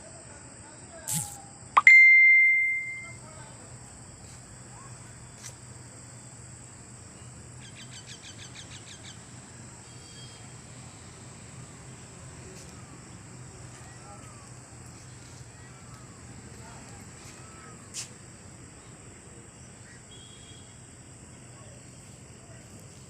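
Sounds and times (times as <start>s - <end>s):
faint bird chirps: 1.1s - 3.2s, 7.2s - 10.6s, 19.8s - 20.8s
high-pitched hum: 1.1s - 3.2s.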